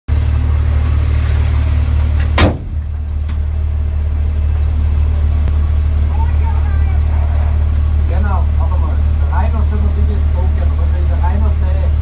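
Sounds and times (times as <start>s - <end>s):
diesel engine running: 0.0s - 12.0s
sharp loud burst: 2.4s - 2.9s.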